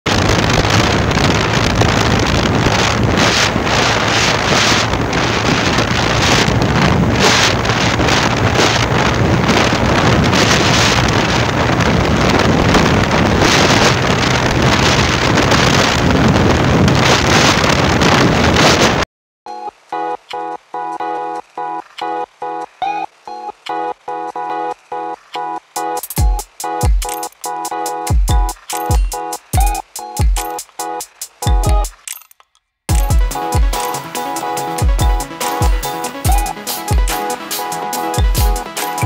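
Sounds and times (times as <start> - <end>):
motorcycle engine hum: 0.1 - 17.9
wind buffeting microphone: 0.1 - 19.0.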